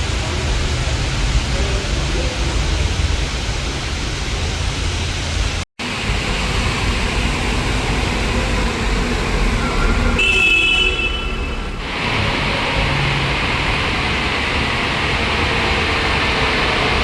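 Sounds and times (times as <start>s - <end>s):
coach engine and road rumble: 0.0s - 17.0s
high-pitched squeal: 6.0s - 17.0s.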